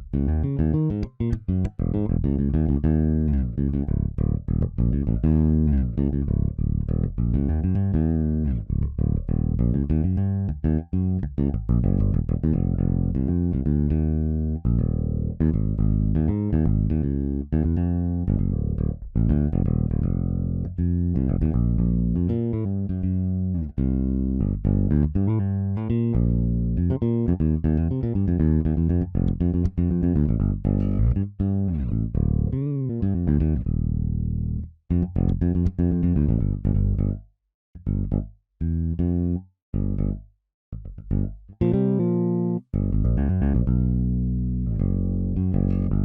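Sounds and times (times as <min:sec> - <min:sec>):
funk electric bass line: 0:00.0 - 0:37.2, 0:37.8 - 0:46.0.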